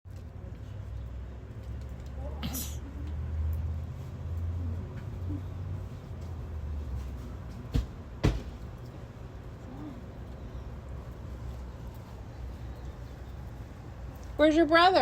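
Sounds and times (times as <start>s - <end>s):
sharp knocks: 7.7s - 8.6s.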